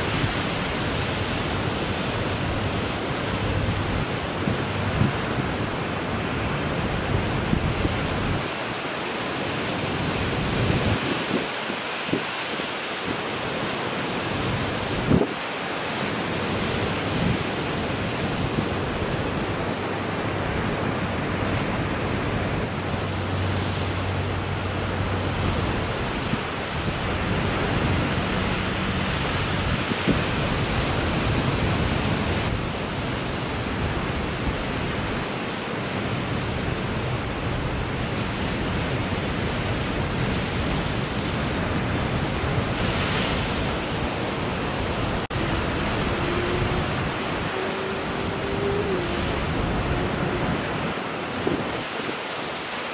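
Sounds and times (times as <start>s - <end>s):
ocean surf breaking: 0.0s - 52.9s
wind buffeting microphone: 14.2s - 15.4s, 36.7s - 52.8s.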